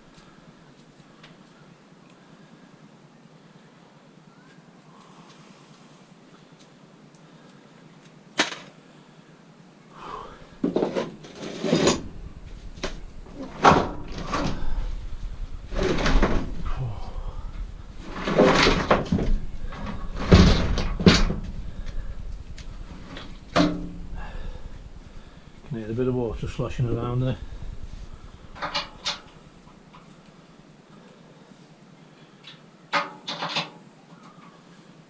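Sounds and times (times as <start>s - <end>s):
scrap metal clanking and banging: 10.6s - 14.8s, 18.0s - 21.6s
low rumble: 11.6s - 30.1s.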